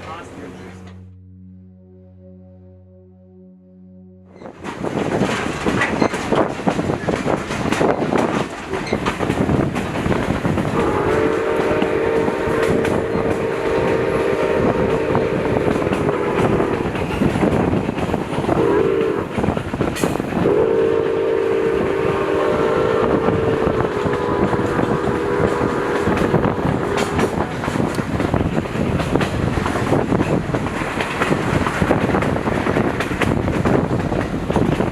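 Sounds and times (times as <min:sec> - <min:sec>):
train wheels clacking on rails: 0:04.6 - 0:21.2, 0:23.1 - 0:34.9
steam locomotive whistle: 0:10.6 - 0:17.0, 0:18.5 - 0:19.4, 0:20.4 - 0:27.5.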